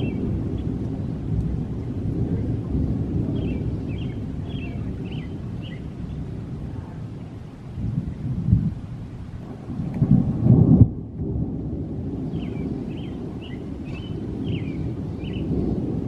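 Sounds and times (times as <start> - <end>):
birds chirping: 0.0 - 2.0, 3.2 - 6.3, 12.2 - 15.9
thunder rumbling: 0.0 - 16.0.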